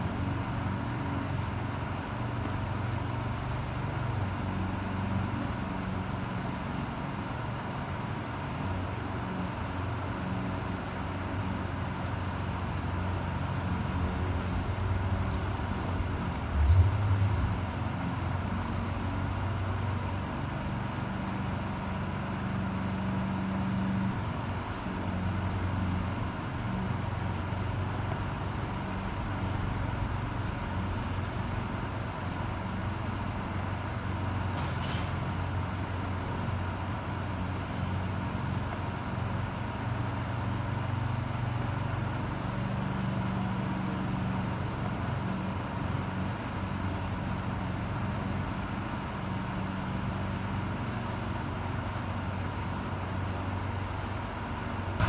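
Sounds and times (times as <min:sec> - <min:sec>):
traffic rumble and hum: 0:00.0 - 0:55.0.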